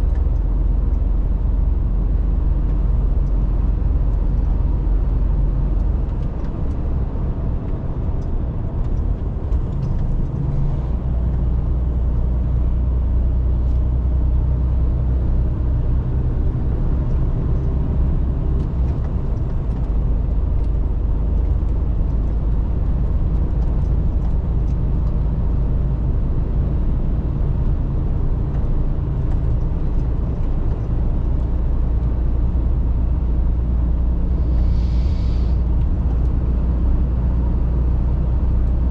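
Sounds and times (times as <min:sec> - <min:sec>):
truck diesel engine drone: 0:00.0 - 0:38.9
tyre and road noise: 0:00.0 - 0:38.9.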